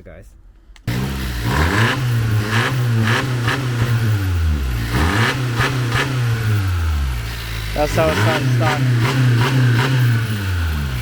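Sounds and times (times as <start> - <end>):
car engine revving: 0.9 - 11.0.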